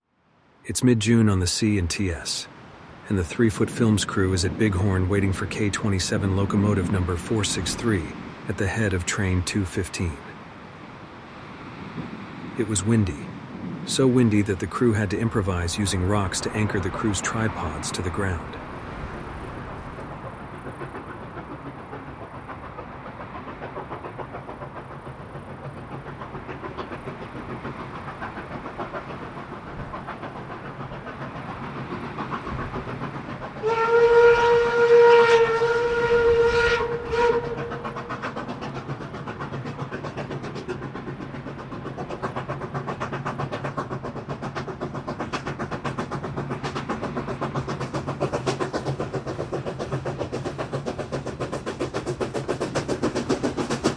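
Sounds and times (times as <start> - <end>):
steam locomotive chugging: 1.0 - 53.9
steam whistle blast: 33.6 - 37.9.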